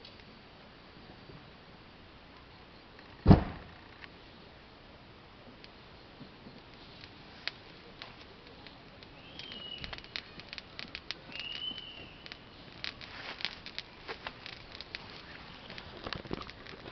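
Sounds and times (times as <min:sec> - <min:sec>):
campfire crackling and popping: 0:02.2 - 0:16.9
short high whistles: 0:09.1 - 0:10.4, 0:11.2 - 0:12.5.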